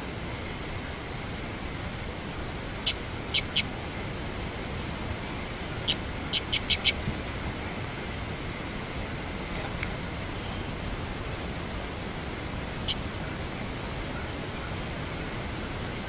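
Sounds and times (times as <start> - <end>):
steady background hiss: 0.0 - 16.0
birds chip calls: 2.8 - 3.7, 5.7 - 7.0, 12.8 - 13.4.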